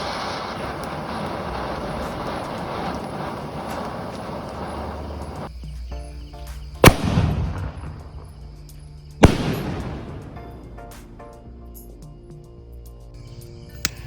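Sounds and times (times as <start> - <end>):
firecracker bangs: 0.0 - 5.5, 6.8 - 11.2
steady rushing noise: 0.0 - 5.5
background music: 5.5 - 14.0.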